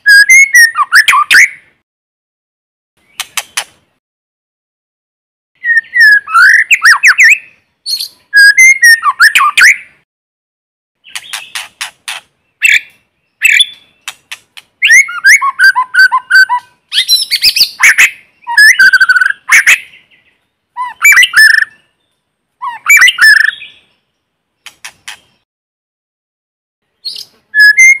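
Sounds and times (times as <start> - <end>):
songbird singing varied phrases: 0.0 - 1.7, 5.6 - 10.0, 11.0 - 25.4, 26.8 - 28.0.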